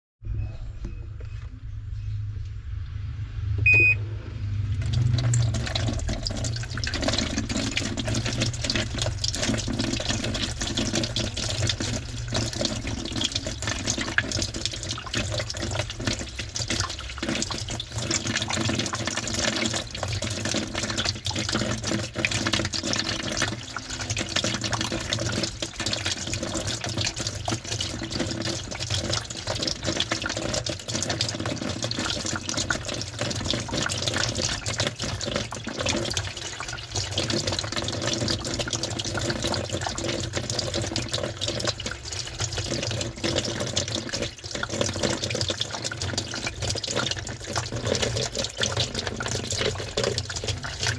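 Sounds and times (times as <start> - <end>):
steady low hum: 0.2 - 10.6
water sloshing in washing machine: 3.6 - 50.9.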